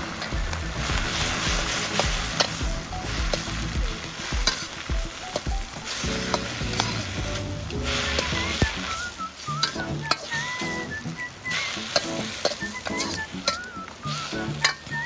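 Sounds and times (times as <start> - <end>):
rice sizzling in a wok: 0.0 - 15.0
metal spatula scraping a wok: 1.1 - 13.6.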